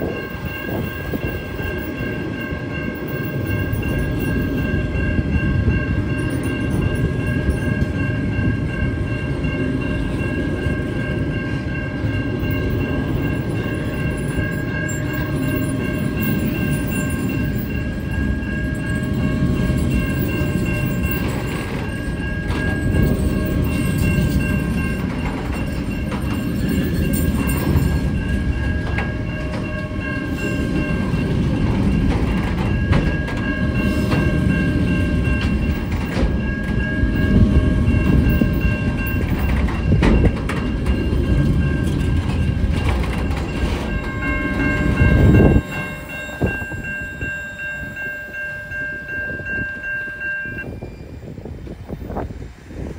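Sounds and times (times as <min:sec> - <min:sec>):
wheels clacking over rails: 0:00.0 - 0:47.4.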